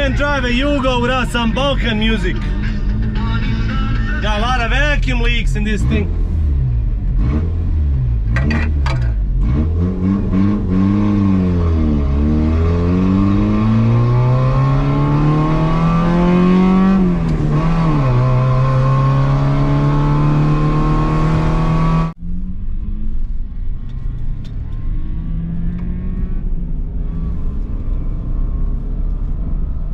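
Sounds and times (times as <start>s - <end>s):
car engine shifting gears: 0.0s - 29.9s.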